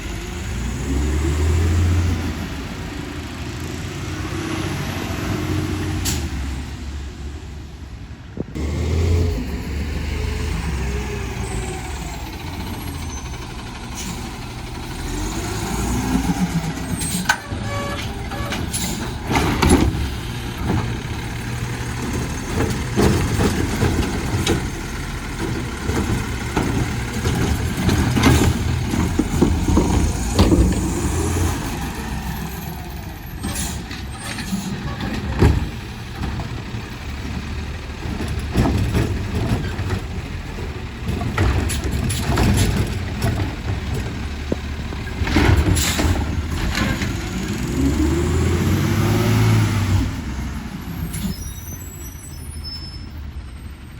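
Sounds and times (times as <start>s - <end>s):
garbage truck engine running: 0.0s - 53.9s
clanks and knocks: 16.8s - 31.5s, 33.4s - 47.5s.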